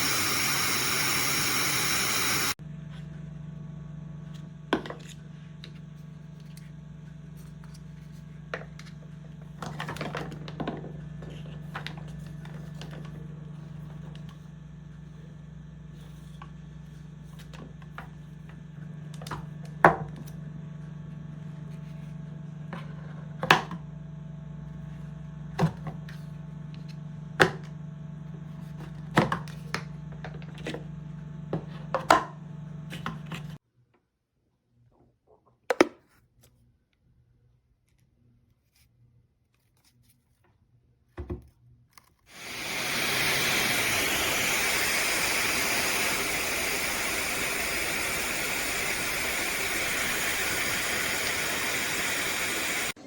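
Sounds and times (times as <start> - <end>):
hair dryer airflow hissing: 0.0 - 2.6, 42.3 - 53.0.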